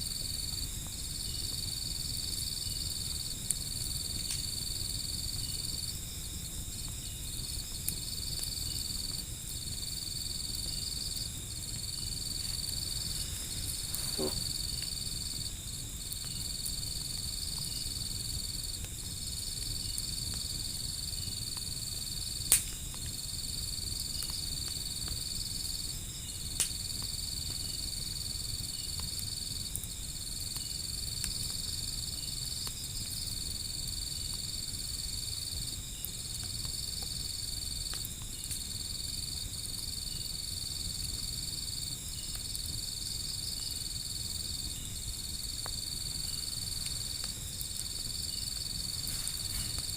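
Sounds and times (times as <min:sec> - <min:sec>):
insects chirring: 0:00.0 - 0:49.9
wood fire popping: 0:00.0 - 0:49.9.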